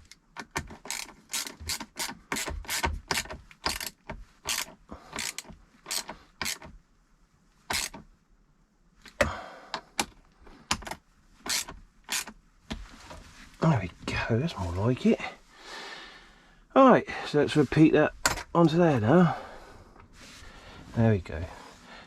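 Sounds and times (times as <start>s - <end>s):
socket ratchet clicking: 0.0s - 6.7s, 7.7s - 8.0s, 10.0s - 12.4s.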